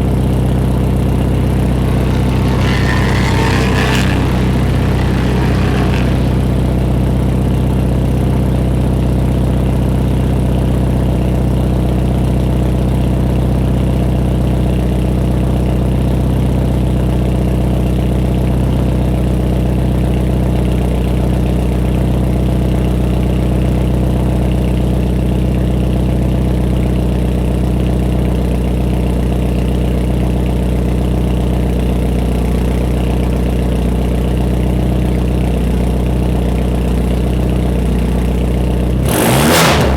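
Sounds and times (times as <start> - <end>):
car engine idling: 0.0 - 11.6, 29.2 - 39.9.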